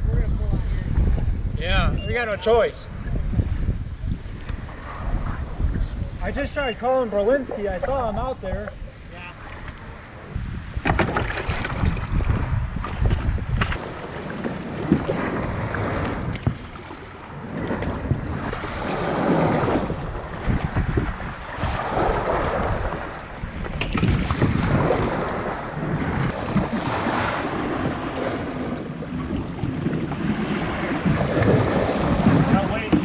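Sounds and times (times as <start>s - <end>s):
wind buffeting microphone: 0.0s - 33.0s
waves splashing against kayak: 8.6s - 33.0s.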